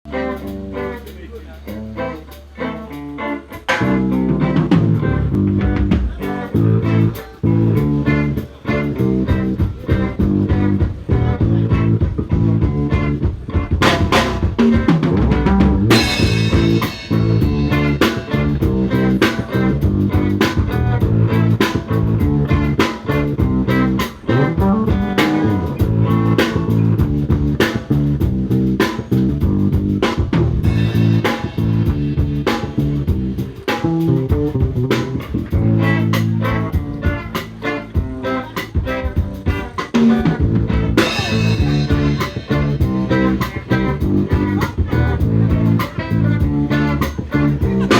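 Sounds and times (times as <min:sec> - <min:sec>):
bass guitar: 0:00.0 - 0:47.9
guitar notes: 0:00.1 - 0:47.9
drum kit hits: 0:09.3 - 0:37.0, 0:38.0 - 0:47.9.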